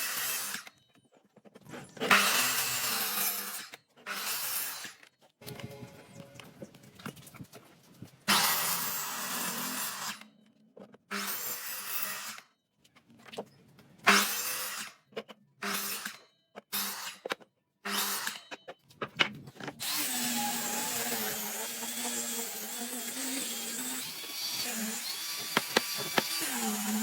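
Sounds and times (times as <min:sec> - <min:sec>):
power tool cutting wood: 0:00.0 - 0:00.7, 0:02.0 - 0:06.2, 0:08.3 - 0:10.2, 0:11.1 - 0:12.4, 0:17.9 - 0:18.4, 0:19.8 - 0:27.0.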